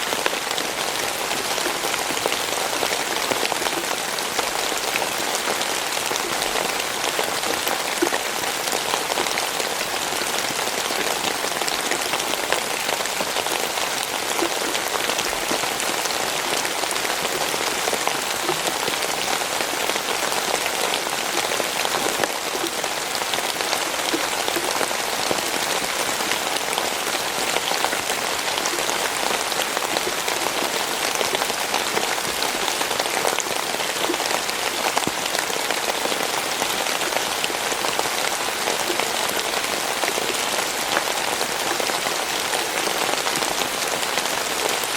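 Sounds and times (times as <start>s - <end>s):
steady rainfall: 0.0s - 44.9s.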